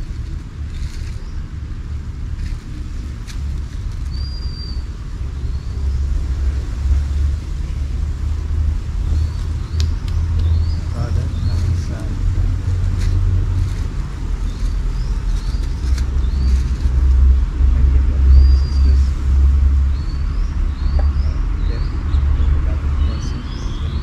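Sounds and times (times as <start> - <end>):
birds chirping: 0.0 - 24.0
loud low rumble: 0.0 - 24.0.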